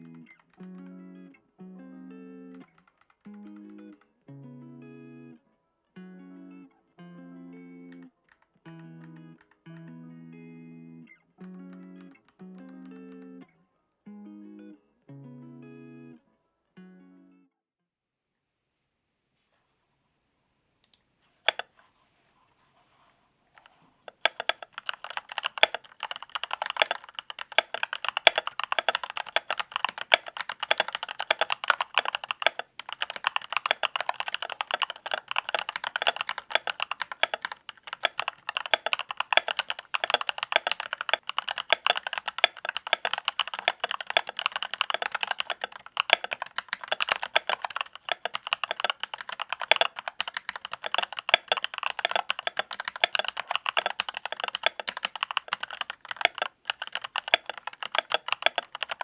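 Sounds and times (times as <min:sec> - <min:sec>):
fast typing on mechanical keyboard: 0:02.6 - 0:04.0, 0:21.5 - 0:21.7, 0:23.6 - 0:59.0.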